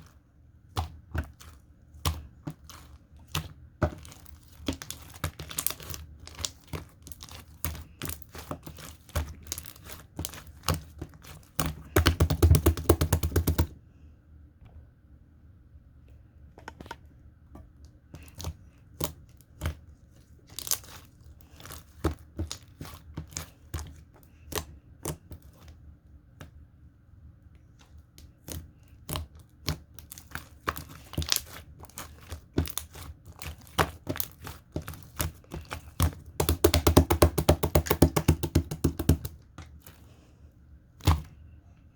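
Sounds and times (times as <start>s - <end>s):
slime crackling and popping: 4.0s - 10.8s, 29.1s - 39.3s.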